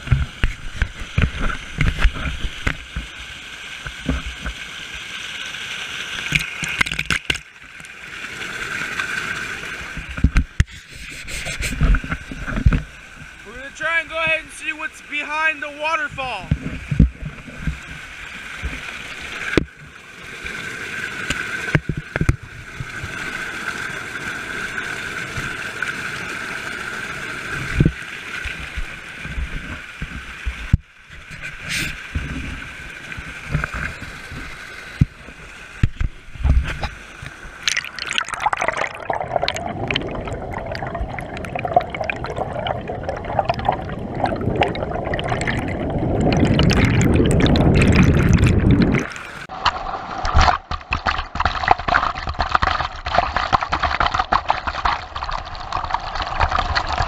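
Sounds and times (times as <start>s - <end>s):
waterfall rushing: 13.4s - 16.5s.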